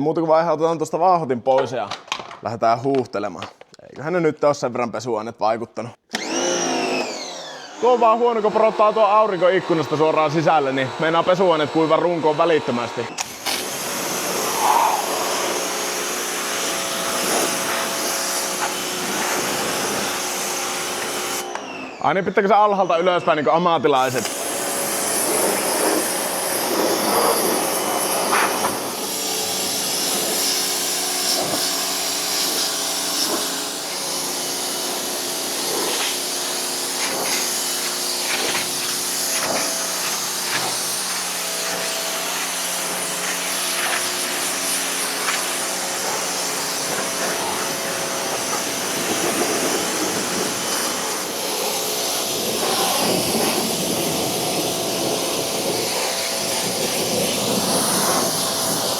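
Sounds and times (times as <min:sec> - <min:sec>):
pump motor humming: 0:06.1 - 0:12.0, 0:13.1 - 0:22.0, 0:24.0 - 0:58.9
water jet hissing: 0:13.2 - 0:21.5, 0:24.0 - 0:58.9.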